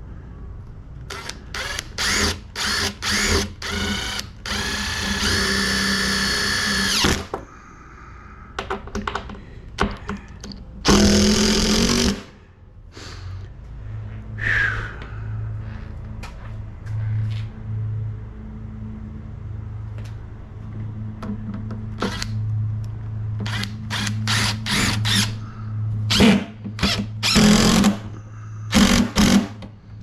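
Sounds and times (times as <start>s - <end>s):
cordless drill driving screws: 1.1s - 7.3s, 10.9s - 12.2s, 23.4s - 25.3s, 26.1s - 28.0s, 28.7s - 29.5s.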